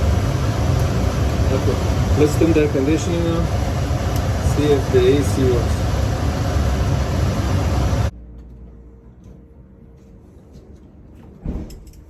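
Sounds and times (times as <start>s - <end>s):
loud rushing air noise: 0.0s - 8.1s.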